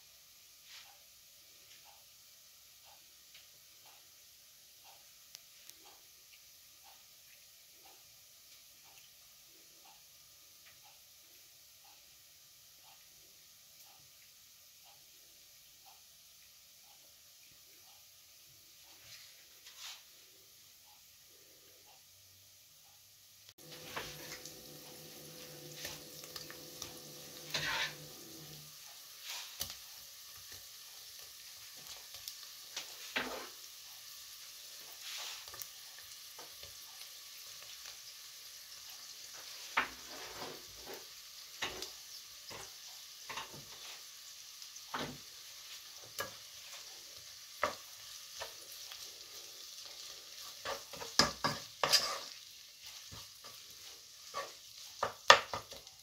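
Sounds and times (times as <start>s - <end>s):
sausage sizzling in oil: 0.0s - 56.0s
wooden spoon stirring against pot: 23.6s - 33.6s, 39.0s - 44.2s, 44.9s - 56.0s.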